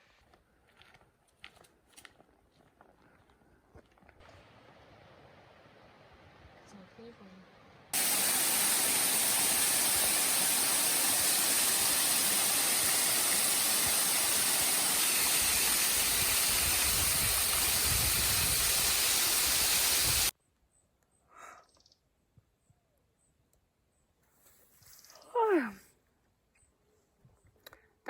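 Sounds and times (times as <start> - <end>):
rushing mountain water: 7.9 - 20.3.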